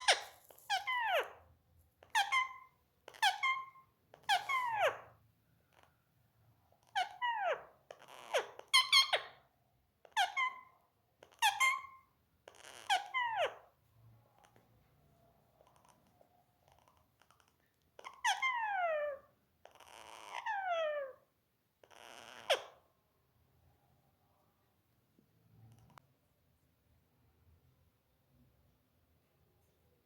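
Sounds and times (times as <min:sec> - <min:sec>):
parakeet harsh calls: 0:00.0 - 0:01.4, 0:02.1 - 0:05.0.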